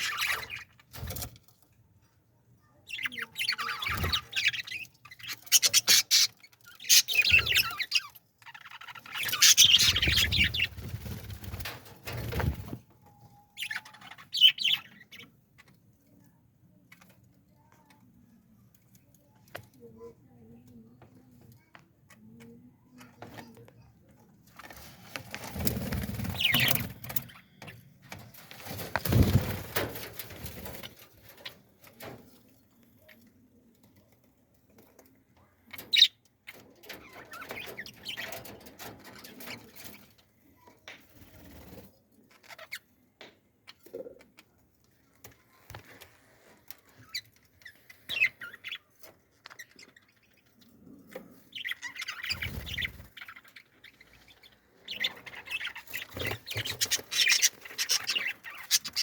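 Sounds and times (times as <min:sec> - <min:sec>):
birds chirping: 0:00.0 - 0:01.0, 0:02.6 - 0:16.2, 0:21.2 - 0:32.2, 0:35.4 - 0:40.2, 0:46.8 - 0:59.0.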